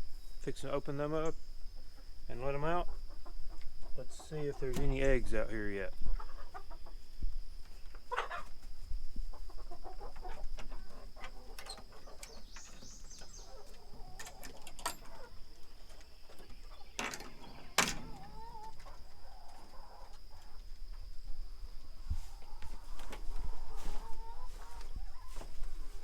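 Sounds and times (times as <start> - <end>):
hens clucking: 1.8 - 26.0
sharp knocks and rattles: 16.9 - 18.4.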